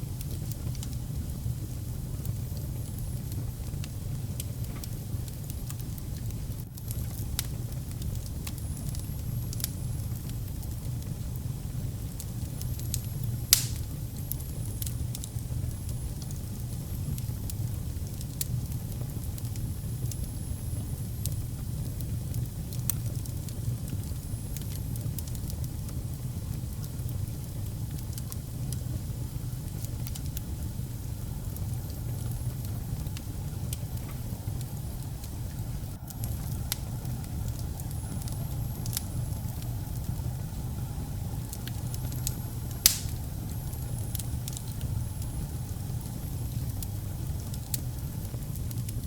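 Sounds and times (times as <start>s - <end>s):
wood fire crackling: 0.0s - 49.0s
loud pop from fire: 13.5s - 14.0s, 42.8s - 43.4s.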